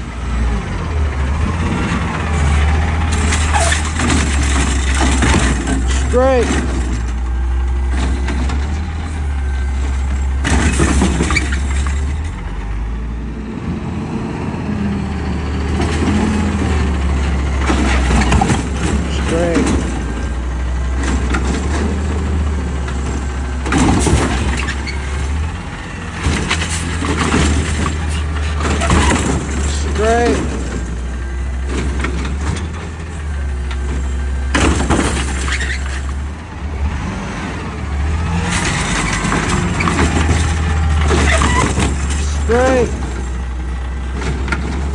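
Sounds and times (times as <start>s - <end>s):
diesel engine droning: 0.0s - 44.9s
metallic clattering: 1.7s - 12.4s.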